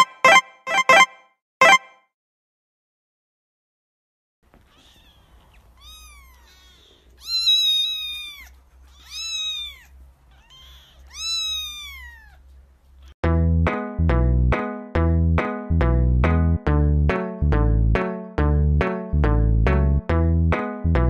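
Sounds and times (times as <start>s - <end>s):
kittens mewing: 4.6s - 12.5s.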